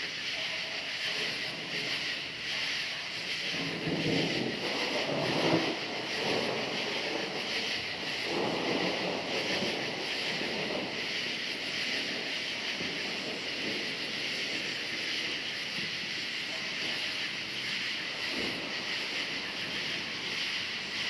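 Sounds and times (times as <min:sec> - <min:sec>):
crickets chirping: 0:00.0 - 0:21.0
distant thunder rumbling: 0:03.6 - 0:15.9.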